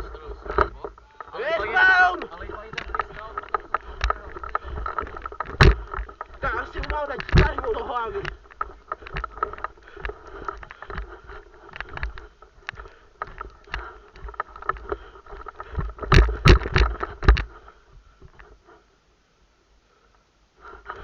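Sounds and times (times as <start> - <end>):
rustling: 0.0 - 19.2.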